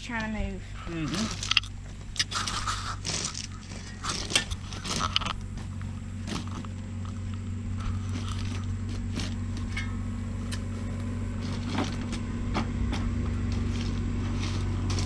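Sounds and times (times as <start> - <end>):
tractor engine running: 0.0 - 15.0
hand tools scraping rock: 0.8 - 10.8, 12.9 - 15.0.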